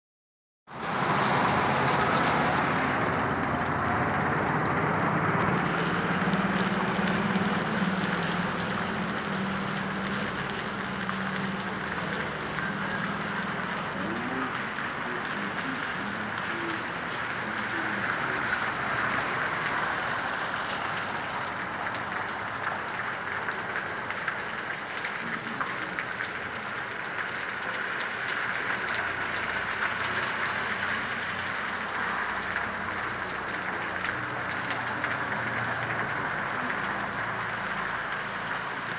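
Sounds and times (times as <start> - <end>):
raindrops ticking nearby: 0.7 - 38.9
heavy rain hissing: 5.2 - 38.9.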